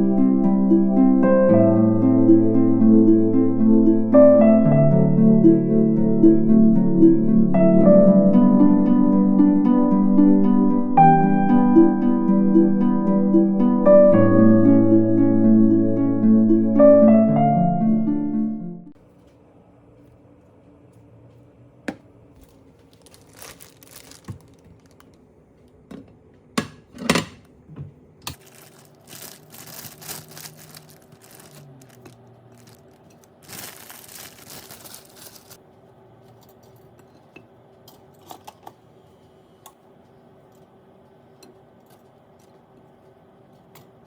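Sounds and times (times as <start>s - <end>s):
packaging crinkling: 22.4s - 25.2s, 28.3s - 35.6s.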